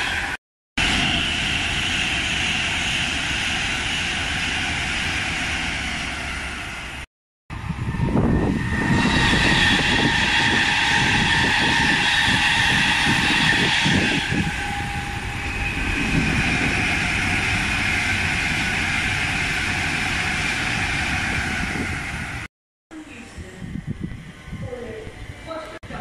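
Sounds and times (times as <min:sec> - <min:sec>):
passenger train passing: 0:00.0 - 0:26.0
train whine: 0:00.0 - 0:26.0.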